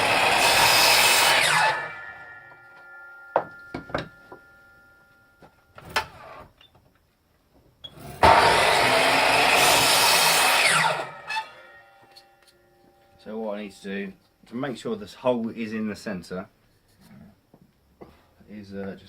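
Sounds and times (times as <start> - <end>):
power tool motor running: 0.0 - 2.0, 8.0 - 11.3.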